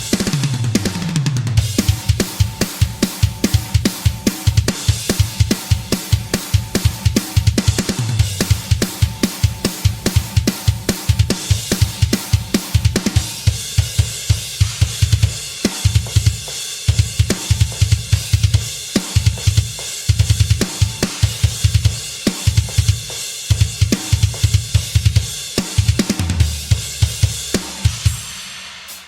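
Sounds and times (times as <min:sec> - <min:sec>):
bass drum strokes: 0:00.0 - 0:14.0
cymbals and hi-hat: 0:00.0 - 0:29.0.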